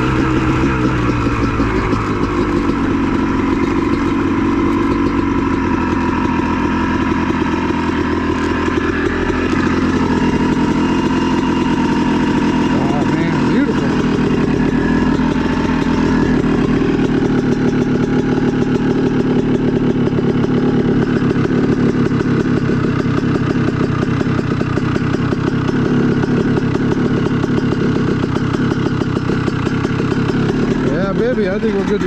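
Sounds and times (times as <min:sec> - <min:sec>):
dirt bike engine idling: 0:00.0 - 0:32.0.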